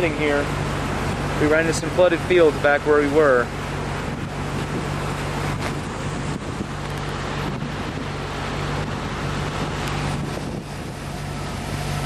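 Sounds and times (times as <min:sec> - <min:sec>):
flooding river rushing: 0:00.0 - 0:12.0
wind on microphone: 0:03.2 - 0:12.0.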